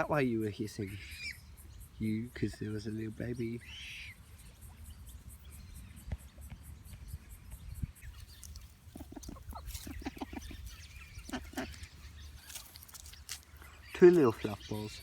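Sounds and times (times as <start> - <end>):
bird clucking calls: 7.8 - 15.0.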